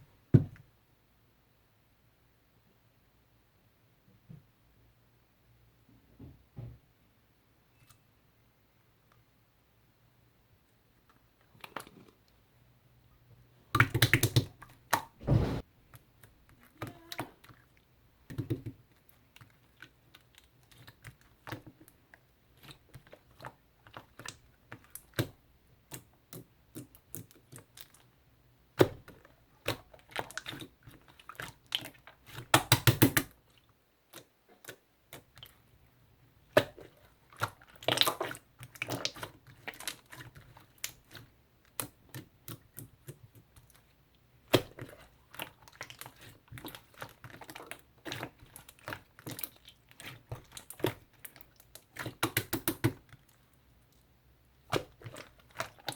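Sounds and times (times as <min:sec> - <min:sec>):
jelly pudding sticky squelches: 0:13.7 - 0:55.9.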